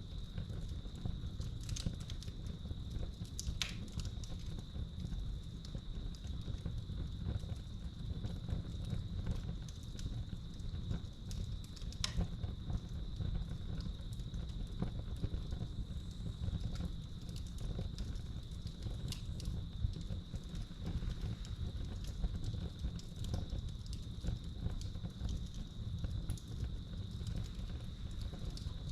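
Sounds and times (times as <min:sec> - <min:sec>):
wood fire crackling: 0:00.0 - 0:28.9.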